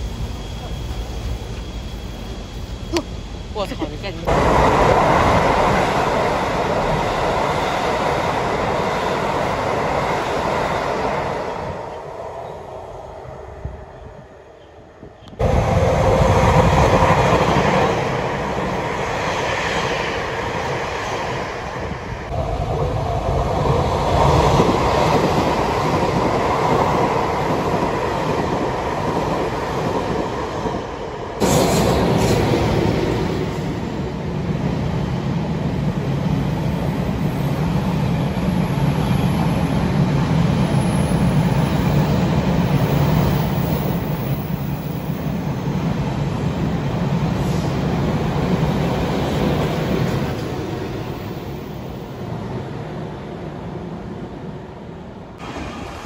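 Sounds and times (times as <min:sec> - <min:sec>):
train wheels running on rail: 0:00.0 - 0:52.9, 0:55.4 - 0:56.0
train passing underground station: 0:00.0 - 0:56.0.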